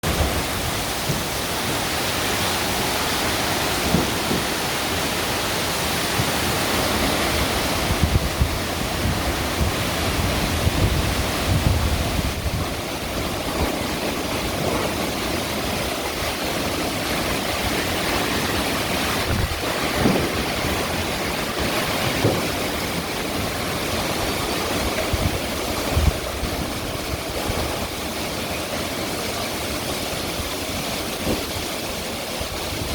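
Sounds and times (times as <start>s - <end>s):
rushing water: 0.0s - 32.9s
strong wind: 0.0s - 32.9s
wind buffeting microphone: 0.0s - 32.9s.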